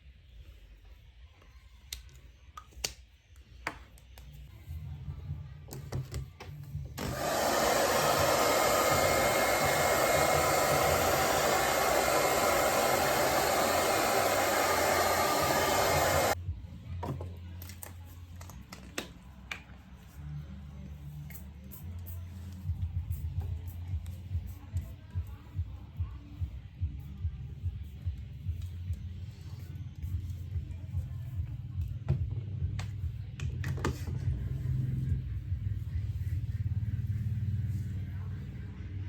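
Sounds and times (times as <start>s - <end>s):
small electric motor running: 7.0s - 16.4s.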